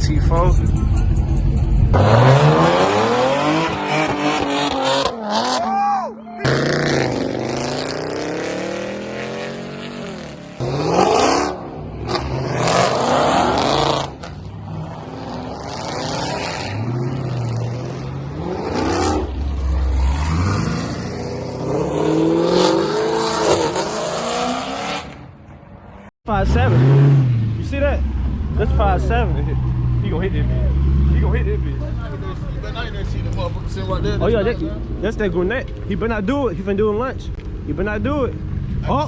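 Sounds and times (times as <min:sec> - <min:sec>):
deep engine rumble: 0:00.0 - 0:03.7, 0:26.4 - 0:39.0
car engines revving: 0:00.0 - 0:39.0.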